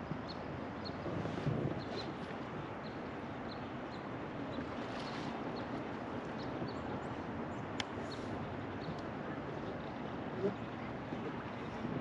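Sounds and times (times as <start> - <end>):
wind on microphone: 0.0 - 2.8, 8.1 - 12.0.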